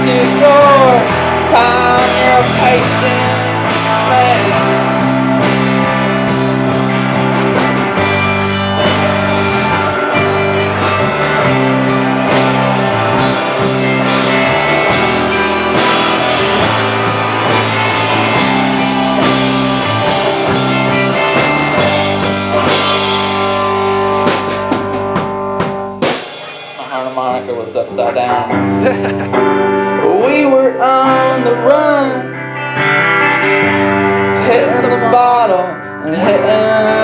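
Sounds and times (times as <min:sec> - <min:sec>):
drum kit beat: 0:00.0 - 0:29.8, 0:34.4 - 0:36.5
bass guitar: 0:00.0 - 0:37.0
electric guitars holding chords: 0:00.0 - 0:37.0
cymbals: 0:00.4 - 0:23.7.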